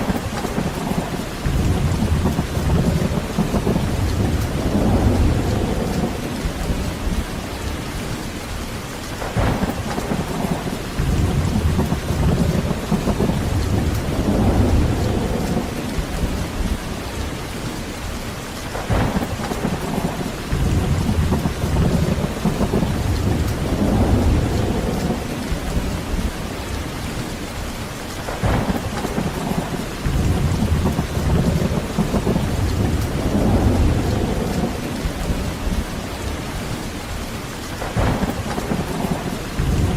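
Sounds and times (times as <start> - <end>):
sharp thunder clap: 0.0 - 7.2, 9.2 - 16.8, 18.7 - 26.3, 28.3 - 35.9, 37.8 - 39.9
rolling thunder: 0.0 - 8.2, 9.2 - 17.8, 18.7 - 27.5, 28.2 - 39.9
heavy rain: 0.0 - 39.9.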